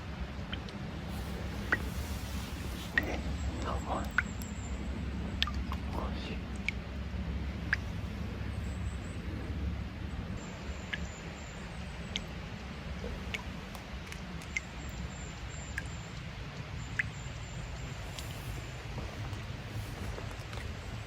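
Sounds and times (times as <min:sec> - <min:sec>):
sharp water drips: 0:00.2 - 0:09.5, 0:10.4 - 0:21.0
spring water running: 0:01.0 - 0:04.5.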